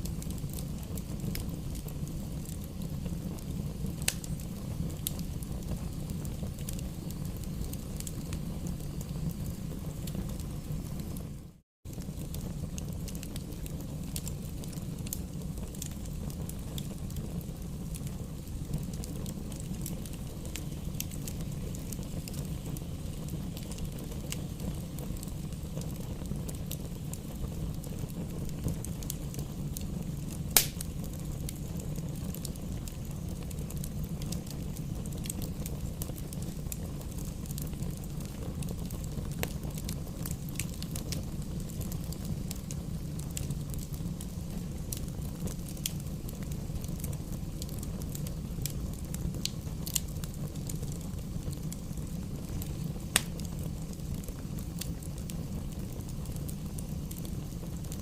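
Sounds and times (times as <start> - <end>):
wood fire crackling: 0.0 - 58.0
loud wood pop: 30.6 - 30.8.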